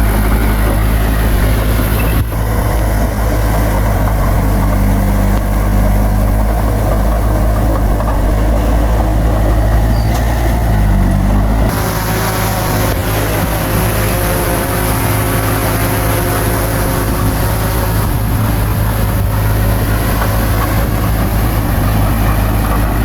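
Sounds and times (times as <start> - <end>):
heavy diesel engine rumbling: 0.0 - 23.0.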